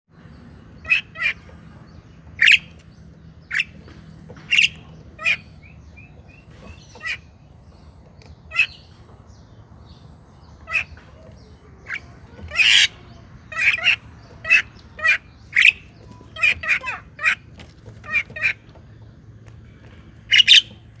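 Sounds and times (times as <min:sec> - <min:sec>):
bird short sharp calls: 0:20.3 - 0:20.8.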